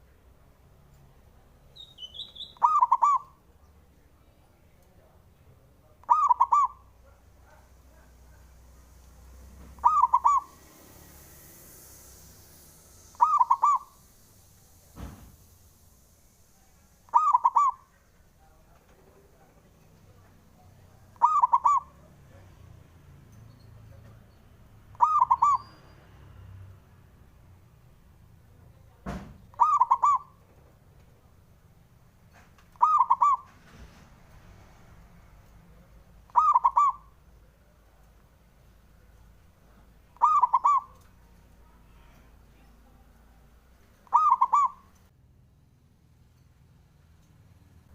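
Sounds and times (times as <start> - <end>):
dove cooing: 2.6 - 3.4, 6.0 - 6.9, 9.8 - 10.8, 13.1 - 14.0, 17.1 - 17.9, 21.2 - 22.0, 24.9 - 25.6, 29.5 - 30.4, 32.8 - 33.5, 36.3 - 37.2, 40.2 - 41.0, 44.0 - 45.0.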